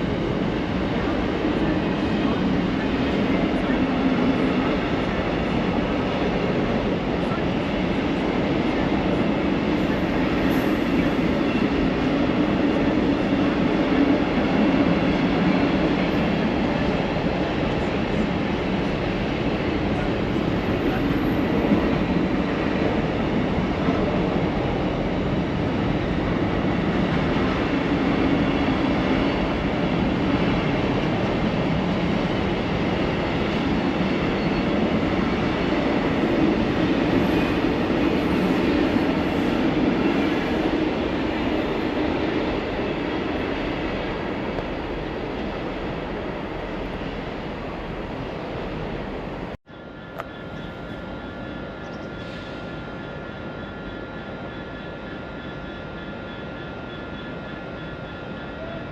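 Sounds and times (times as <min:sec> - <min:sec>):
train wheels rumbling on rails: 0:00.0 - 0:58.9.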